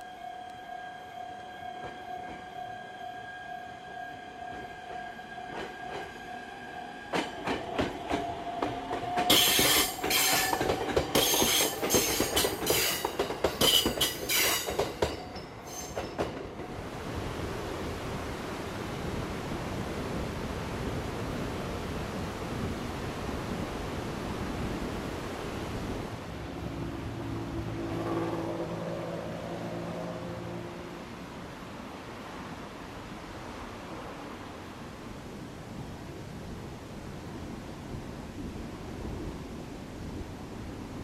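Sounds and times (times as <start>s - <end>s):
electric train high whine: 0.0s - 17.5s, 26.2s - 31.8s
train wheels clattering over joints: 7.2s - 16.6s
wheel squeals and clanks: 9.3s - 15.0s, 15.6s - 16.2s.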